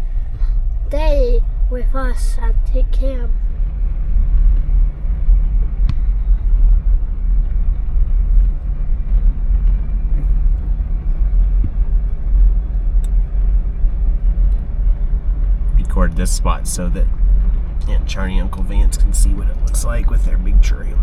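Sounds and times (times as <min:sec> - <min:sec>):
vehicle driving rumble: 0:00.0 - 0:21.0.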